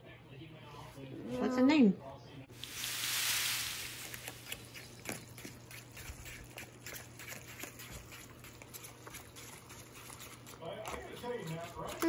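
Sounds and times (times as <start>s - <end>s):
wet eating clicks and rustles: 2.6s - 12.0s.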